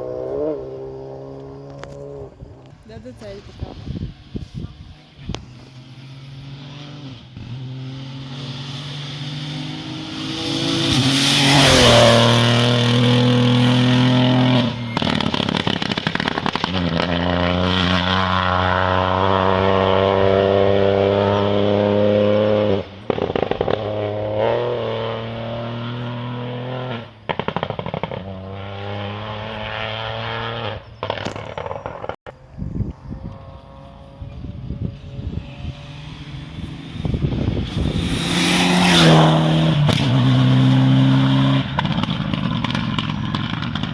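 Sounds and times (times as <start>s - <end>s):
rally car engines revving past: 0.0s - 43.9s
sharp cracks: 27.3s - 28.3s.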